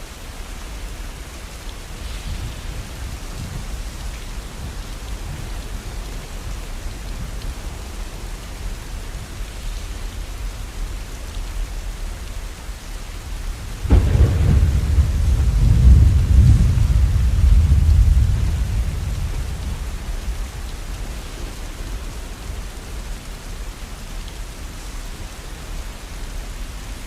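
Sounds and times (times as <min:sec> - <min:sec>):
steady rain falling: 0:00.0 - 0:27.0
thunder clap and rumble: 0:13.6 - 0:22.8.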